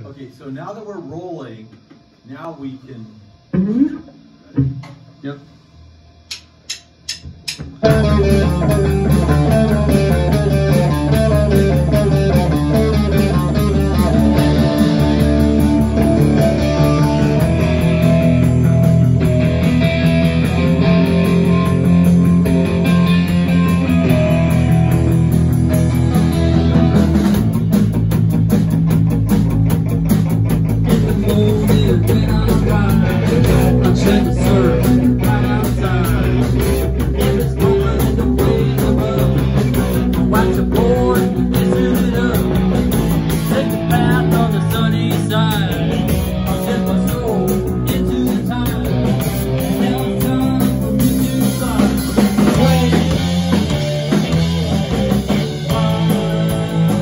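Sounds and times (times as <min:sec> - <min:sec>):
drumstick clicks: 0:06.3 - 0:07.8
rock band playing live: 0:06.5 - 0:57.0.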